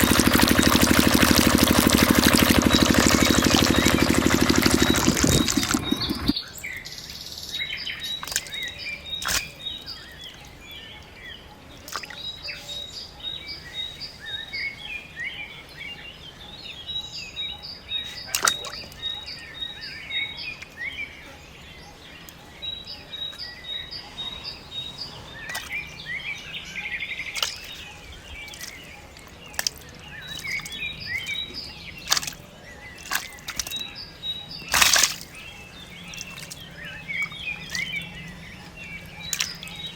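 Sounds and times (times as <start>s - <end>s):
diesel engine stopping: 0.0s - 6.4s
small birds chirping: 0.0s - 39.9s.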